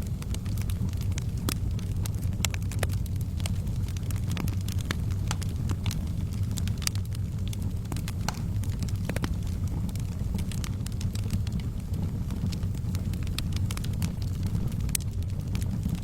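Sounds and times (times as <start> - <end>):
fire crackling and popping: 0.0 - 16.0
fireplace flames rumbling: 0.0 - 16.0.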